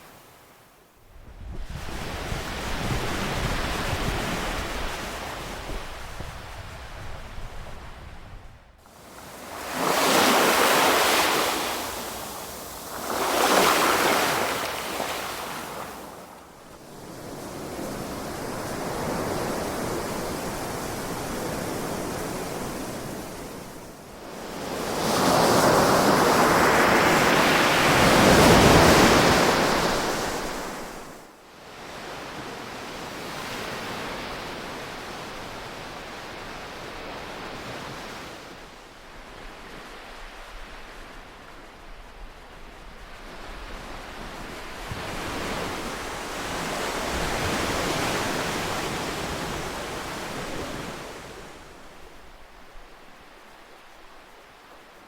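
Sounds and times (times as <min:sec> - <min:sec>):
ocean waves breaking: 0:08.9 - 0:23.5.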